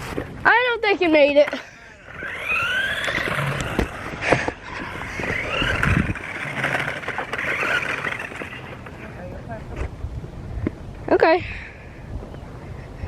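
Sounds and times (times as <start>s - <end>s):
electric motor whining: 1.2s - 9.3s.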